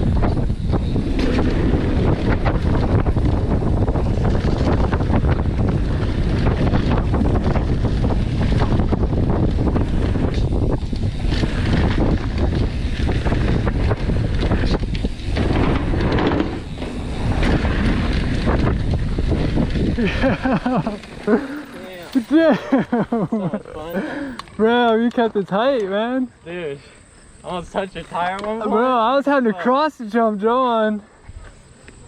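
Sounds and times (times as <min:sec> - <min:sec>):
wind buffeting microphone: 0:00.0 - 0:25.4
bike clattering: 0:00.0 - 0:26.1
tyres rumbling on dirt: 0:00.0 - 0:26.2.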